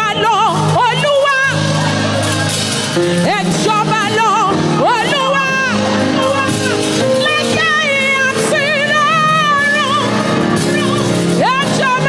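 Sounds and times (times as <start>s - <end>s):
sustained backing music: 0.0s - 12.0s
woman singing gospel song: 0.0s - 12.0s.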